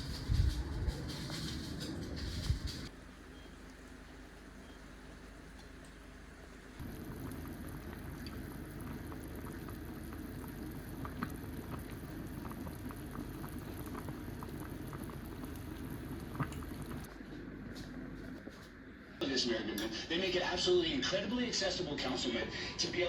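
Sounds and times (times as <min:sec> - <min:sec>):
liquid boiling in a pot: 0:00.0 - 0:18.4.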